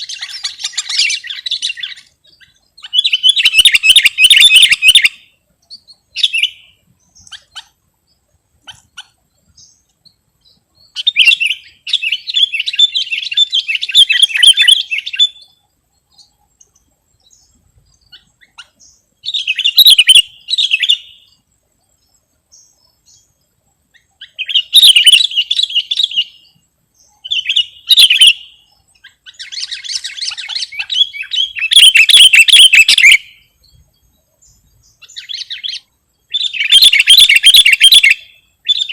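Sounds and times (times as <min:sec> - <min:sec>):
bird singing rapid high notes: 0:00.0 - 0:05.3, 0:11.0 - 0:15.6, 0:18.2 - 0:21.3, 0:24.3 - 0:26.5, 0:27.2 - 0:28.7, 0:29.3 - 0:33.5, 0:34.9 - 0:38.9.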